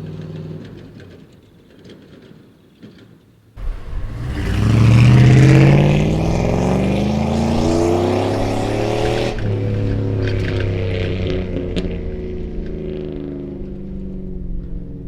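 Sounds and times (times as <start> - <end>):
car exhaust accelerating: 3.6 - 15.0.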